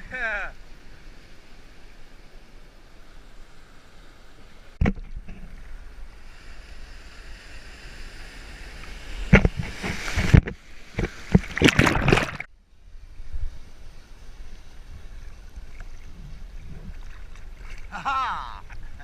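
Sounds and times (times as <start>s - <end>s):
rushing water: 0.0s - 12.5s, 13.8s - 19.0s
wind noise: 4.8s - 19.0s
water splashes: 7.8s - 12.5s, 15.3s - 19.0s.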